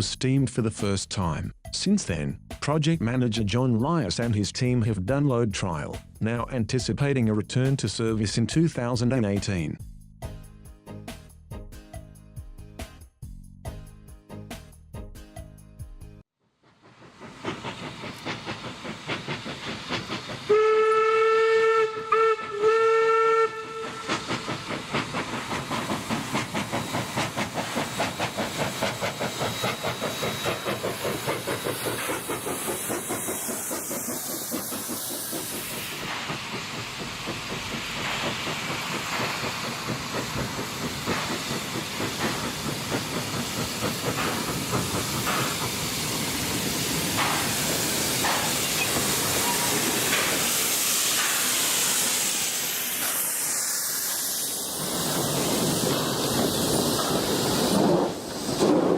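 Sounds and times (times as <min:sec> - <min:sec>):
steam locomotive chuffing: 0:16.5 - 0:58.9
hissing steam: 0:16.6 - 0:58.9
steam whistle: 0:20.5 - 0:24.2.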